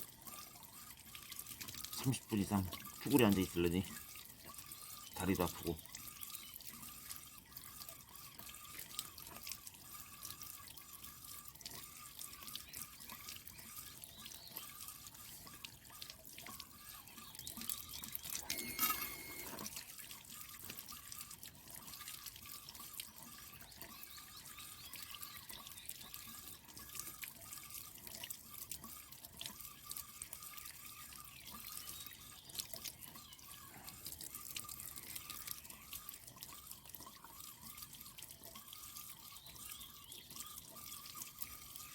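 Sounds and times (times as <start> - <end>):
water dripping and trickling: 0.0 - 41.9.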